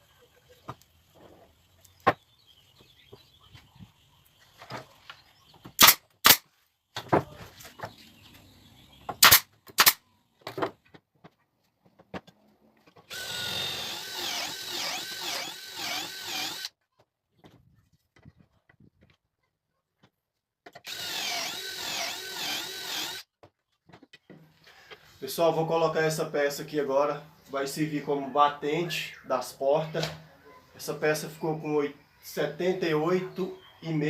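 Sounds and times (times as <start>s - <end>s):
power drill running: 13.1s - 16.7s, 20.8s - 23.2s.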